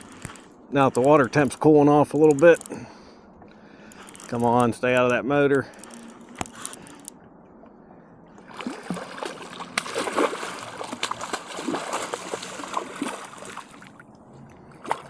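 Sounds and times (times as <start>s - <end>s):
fish thrashing and splashing: 8.4s - 14.0s.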